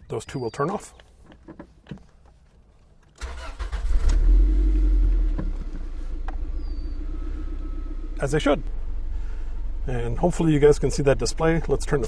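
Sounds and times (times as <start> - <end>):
car engine starting and idling: 3.1 - 12.0
starter motor cranking: 3.2 - 4.5.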